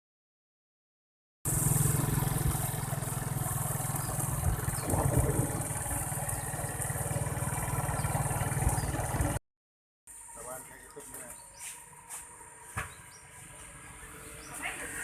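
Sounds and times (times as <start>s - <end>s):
engine running: 1.5s - 9.4s, 10.1s - 15.0s.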